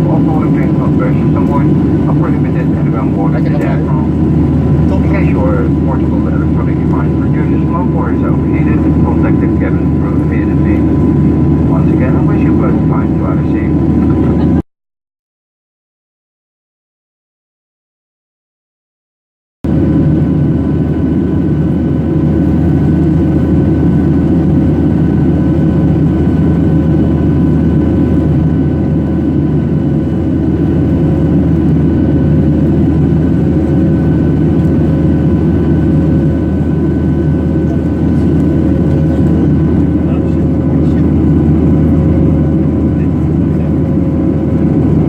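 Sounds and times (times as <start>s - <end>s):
steady whining tones: 0.0s - 14.6s
jet engine drone in cabin: 0.0s - 14.7s, 19.7s - 45.0s.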